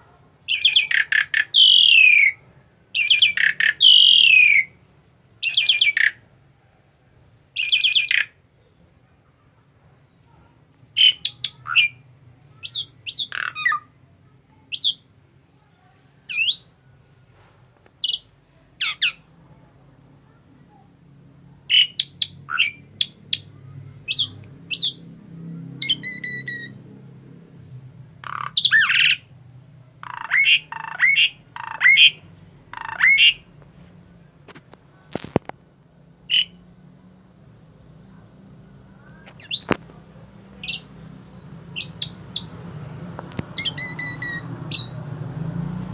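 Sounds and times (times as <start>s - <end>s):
starling chirps and squawks: 0.5s - 2.4s, 3.0s - 4.8s, 5.4s - 6.4s, 7.6s - 8.4s, 10.3s - 13.9s, 21.6s - 25.1s, 25.8s - 26.8s, 28.2s - 29.3s, 30.0s - 33.5s, 36.3s - 36.6s, 39.0s - 39.8s, 40.5s - 40.9s, 41.7s - 42.5s, 43.5s - 45.0s.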